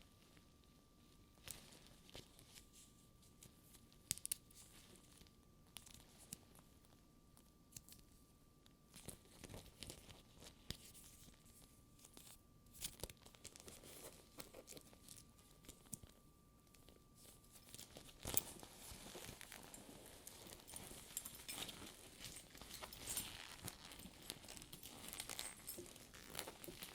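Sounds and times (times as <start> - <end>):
rustling: 9.0 - 26.9.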